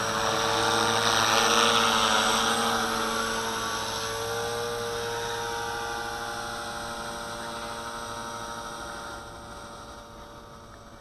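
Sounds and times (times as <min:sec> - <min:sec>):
rc helicopter buzzing whine: 0:00.0 - 0:11.0.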